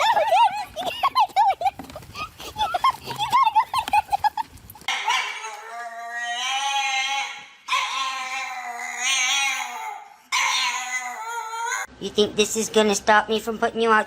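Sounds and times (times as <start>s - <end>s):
dog howling and whining: 4.9s - 11.9s.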